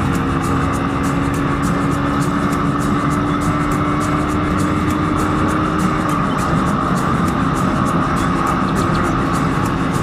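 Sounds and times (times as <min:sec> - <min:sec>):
motorcycle engine running: 0:00.0 - 0:10.0
music with steady beat: 0:00.0 - 0:10.0
road and wind noise: 0:00.0 - 0:10.0.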